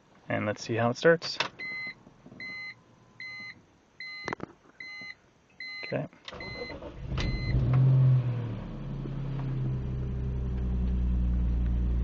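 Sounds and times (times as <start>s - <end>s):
car engine starting and idling: 6.3s - 12.0s.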